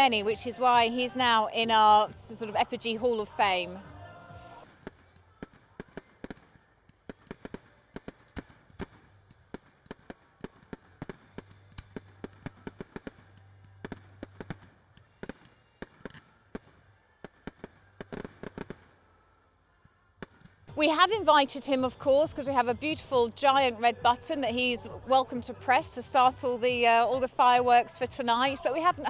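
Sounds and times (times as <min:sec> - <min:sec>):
fireworks crackling: 0:00.0 - 0:19.2.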